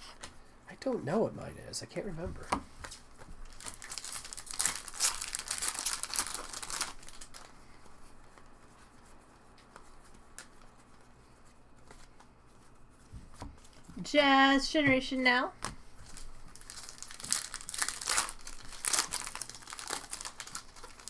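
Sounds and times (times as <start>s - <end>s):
foil wrapper tearing and crinkling: 2.9s - 7.6s, 16.0s - 21.0s.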